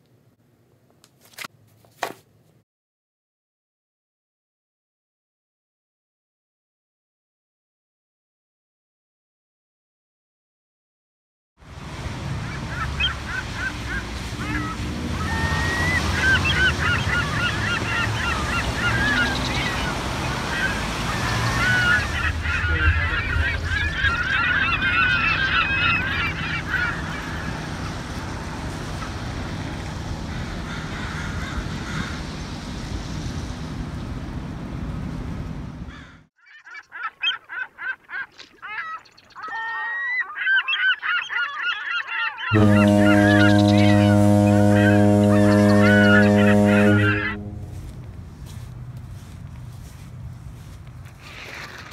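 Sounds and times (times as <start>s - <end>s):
birds honking: 12.0s - 32.9s, 35.9s - 50.8s
low rumble: 42.7s - 51.0s.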